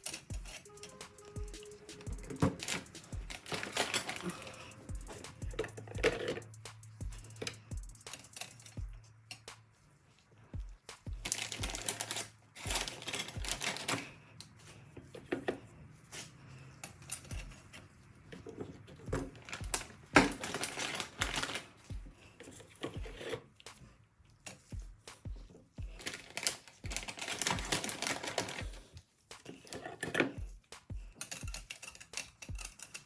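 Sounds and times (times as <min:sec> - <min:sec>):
background music with low beat: 0:00.0 - 0:14.2, 0:17.2 - 0:18.2, 0:19.0 - 0:24.0, 0:24.6 - 0:33.0
metal clutch plates clattering: 0:02.2 - 0:06.6.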